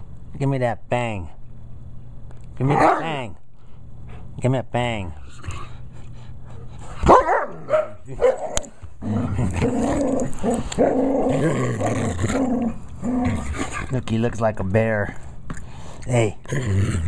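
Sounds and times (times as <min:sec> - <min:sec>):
dog barking: 0:02.7 - 0:03.1, 0:07.1 - 0:08.6
dog growling low: 0:09.0 - 0:13.9, 0:16.4 - 0:17.0.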